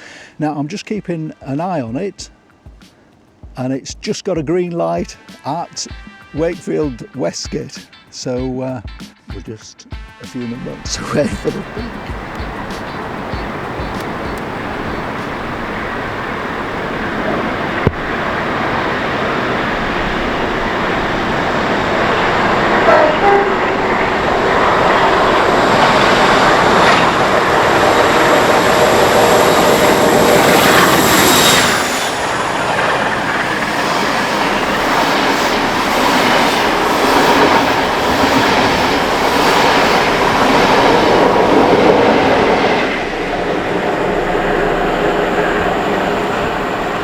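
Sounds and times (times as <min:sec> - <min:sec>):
diesel locomotive engine whine: 0:10.4 - 0:47.0
wheels clacking over rail joints: 0:11.7 - 0:47.0.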